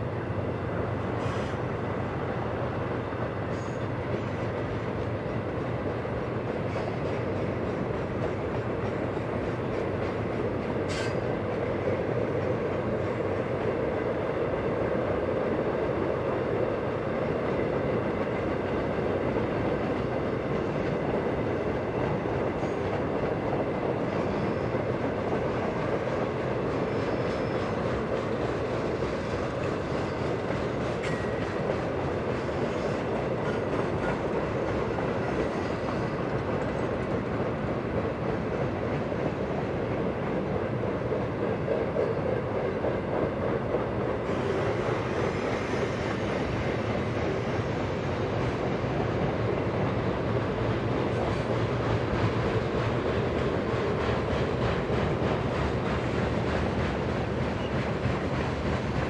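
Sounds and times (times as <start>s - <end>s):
freight train rumbling over bridge: 0.0s - 59.0s
wheels clacking over rail joints: 17.4s - 47.5s.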